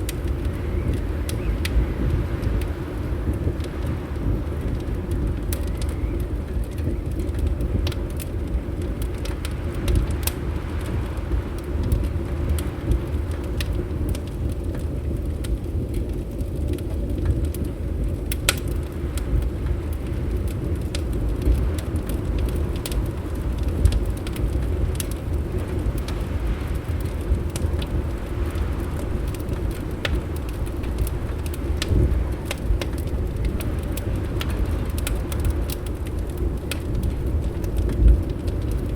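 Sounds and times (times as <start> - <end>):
low rumble of wind: 0.0 - 38.9
wood fire crackling and popping: 0.0 - 38.9.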